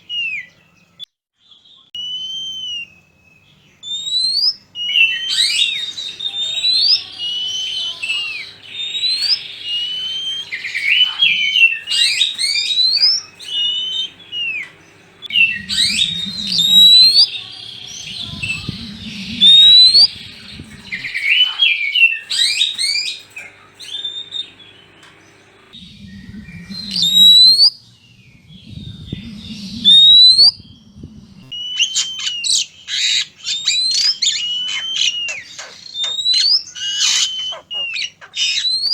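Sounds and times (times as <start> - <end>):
birds singing whistled phrases: 0.0 - 38.9
low rumbling noise: 6.0 - 21.6, 23.2 - 31.8.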